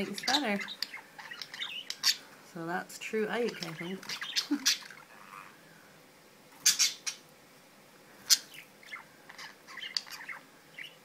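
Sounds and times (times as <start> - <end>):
budgerigar chirps: 4.1 - 5.2, 6.6 - 7.2, 8.3 - 11.0
budgerigar squawks: 4.1 - 5.5, 6.6 - 7.2.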